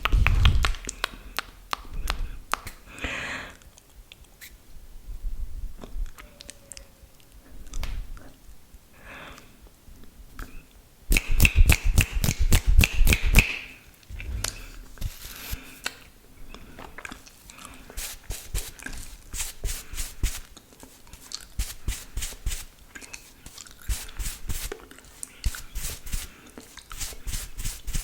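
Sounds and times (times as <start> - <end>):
wet mouth clicks and smacks: 0.0 - 2.8, 11.1 - 13.6.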